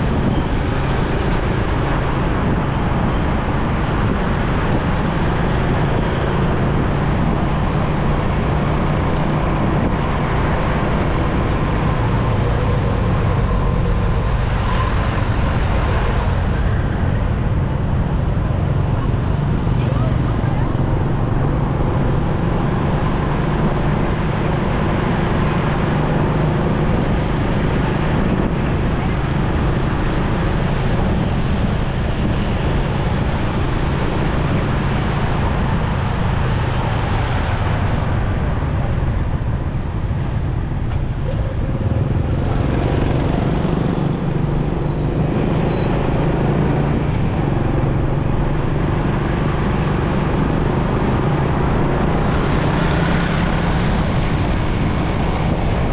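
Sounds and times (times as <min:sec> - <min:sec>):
road traffic: 0:00.0 - 0:55.9
wind rushing over microphone: 0:00.0 - 0:55.9
motorcycle engine running: 0:05.0 - 0:22.4, 0:37.8 - 0:55.9.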